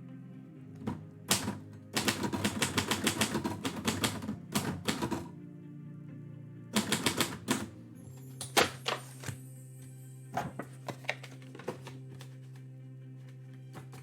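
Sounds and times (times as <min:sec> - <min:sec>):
manual typewriter keystrokes: 0:00.8 - 0:05.2, 0:06.8 - 0:07.7.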